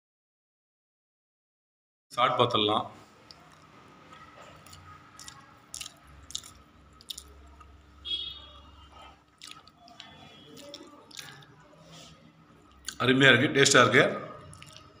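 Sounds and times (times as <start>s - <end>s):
person chewing food: 3.2s - 7.8s, 8.8s - 13.0s, 14.4s - 15.0s.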